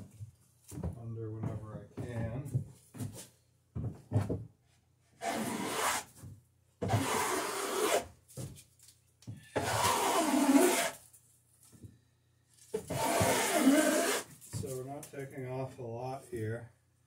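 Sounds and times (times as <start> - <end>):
hand tool shaving wood: 5.2 - 6.1, 6.8 - 8.0, 9.6 - 11.0, 12.7 - 14.3.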